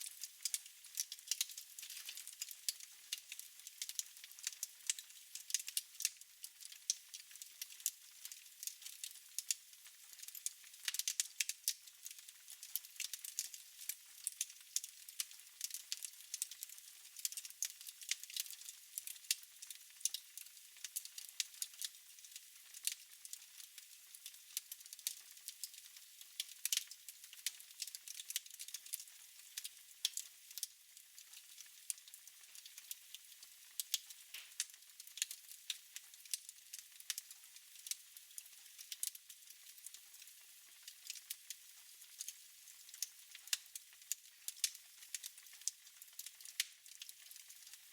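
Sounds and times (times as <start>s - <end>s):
wood fire crackling: 0.0s - 47.9s.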